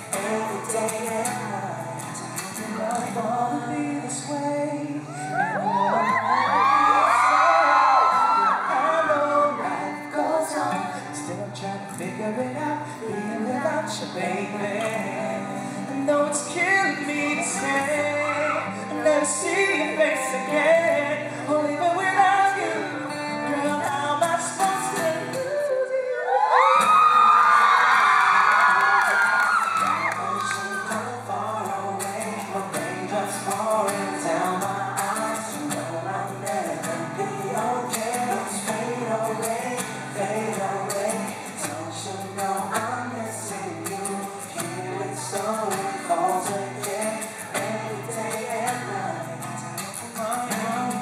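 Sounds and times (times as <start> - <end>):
man singing: 0.0 - 27.0, 29.8 - 51.0
acoustic guitar: 0.0 - 51.0
audience screaming and cheering: 5.0 - 10.8, 17.2 - 20.3, 25.5 - 31.7.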